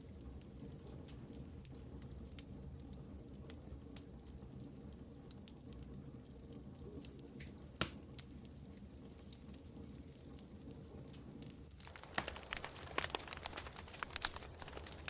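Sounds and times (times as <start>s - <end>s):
wood fire crackling: 11.4s - 15.0s
fire popping: 11.7s - 15.0s.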